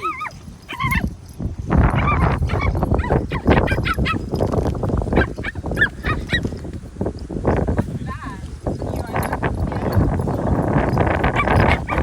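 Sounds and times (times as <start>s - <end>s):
puppies yelping and whimpering: 0.0s - 1.1s, 1.9s - 4.3s, 5.1s - 6.5s, 11.4s - 12.0s.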